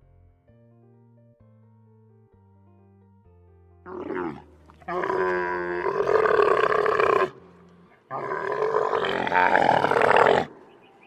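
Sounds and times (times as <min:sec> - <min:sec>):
loud animal calls: 0:08.1 - 0:10.7.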